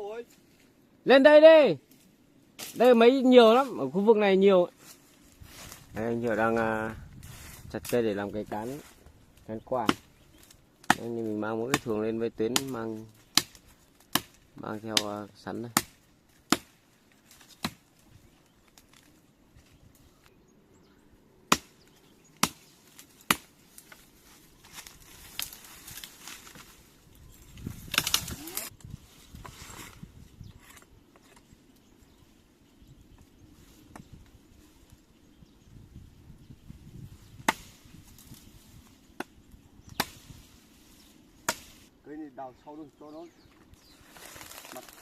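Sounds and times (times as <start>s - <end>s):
blade chopping into tree: 12.5s - 14.4s, 15.7s - 17.9s, 21.5s - 24.0s, 27.6s - 28.7s, 37.4s - 38.4s, 39.2s - 40.4s, 41.4s - 41.8s
rustling: 22.4s - 31.5s, 43.5s - 45.0s.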